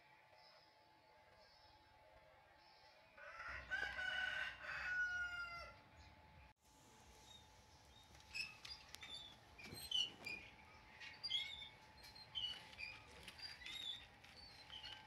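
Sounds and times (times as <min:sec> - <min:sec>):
small birds chirping: 0:07.1 - 0:15.0.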